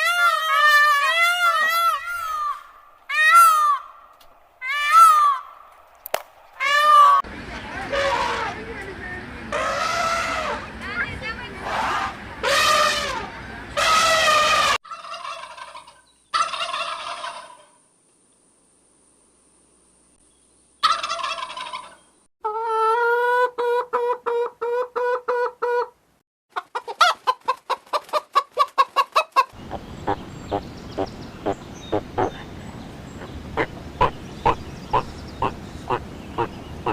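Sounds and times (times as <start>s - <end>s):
fowl calling and trilling: 0.0s - 5.7s, 6.6s - 7.2s, 9.5s - 10.7s, 11.6s - 17.8s, 20.8s - 32.5s, 33.1s - 36.9s
background hiss: 17.3s - 20.9s.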